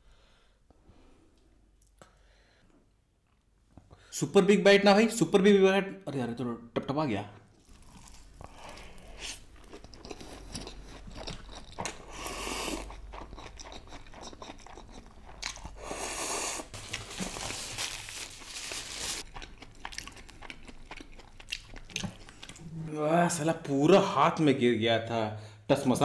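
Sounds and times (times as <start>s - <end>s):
chewing noodles: 7.5s - 17.5s, 18.3s - 22.7s.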